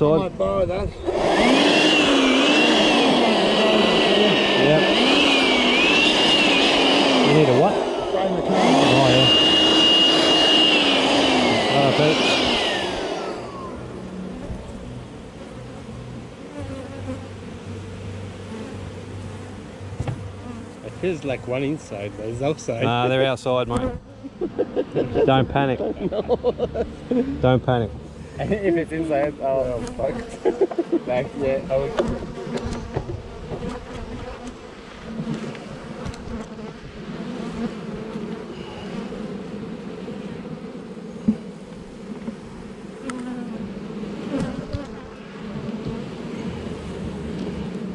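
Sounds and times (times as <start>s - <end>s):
honeybees buzzing: 0.0s - 47.9s
machine high whine: 1.0s - 15.4s.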